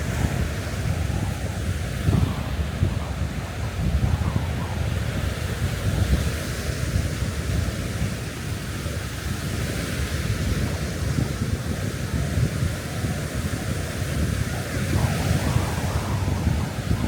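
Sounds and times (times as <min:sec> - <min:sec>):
wind buffeting microphone: 0:00.0 - 0:17.0
surf hiss: 0:06.8 - 0:17.0
rain on beach: 0:10.3 - 0:17.0.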